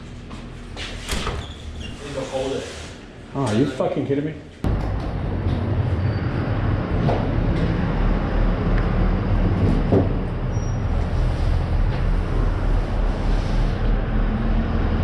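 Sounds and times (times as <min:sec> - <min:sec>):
low mechanical drone: 0:04.6 - 0:15.0.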